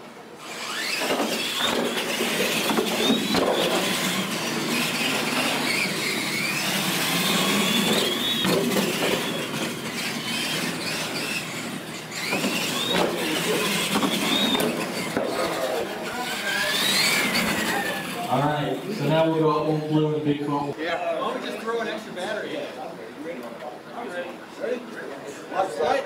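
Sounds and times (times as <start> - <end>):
electric motor whining: 0.4 - 19.3.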